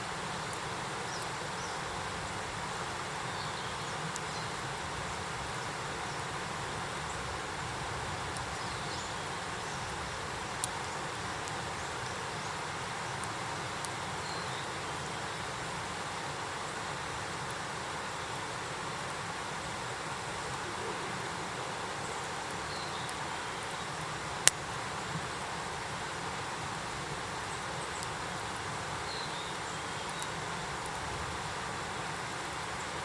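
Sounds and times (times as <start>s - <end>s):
campfire hissing and crackling: 0.0s - 33.0s.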